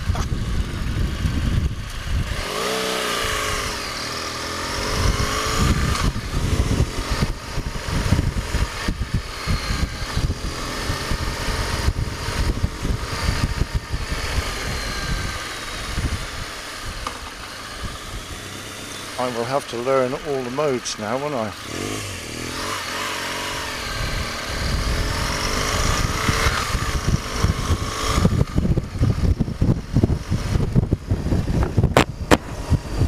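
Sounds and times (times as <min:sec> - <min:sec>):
wind rumble on microphone: 0:00.0 - 0:02.7, 0:04.7 - 0:17.1, 0:22.6 - 0:33.0
motorcycle engine running: 0:00.0 - 0:33.0.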